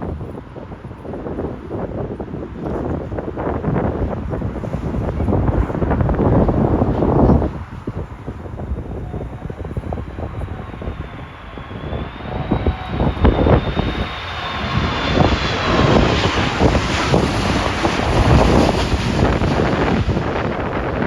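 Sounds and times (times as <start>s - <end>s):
jet airliner passing overhead: 0.0s - 21.0s
wind buffeting microphone: 0.0s - 21.0s
faint high engine whine: 4.6s - 21.0s.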